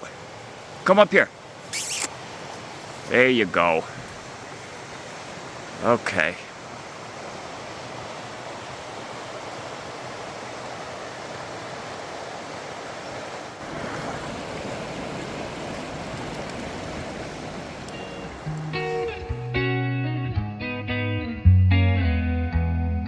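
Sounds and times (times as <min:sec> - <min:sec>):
wind blowing over microphone: 0:13.6 - 0:19.4.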